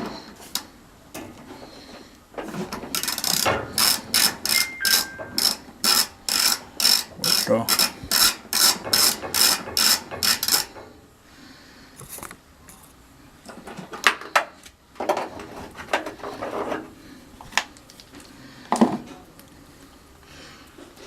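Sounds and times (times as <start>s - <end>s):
socket ratchet clicking: 3.0s - 10.7s
metal tools clinking: 4.5s - 5.6s.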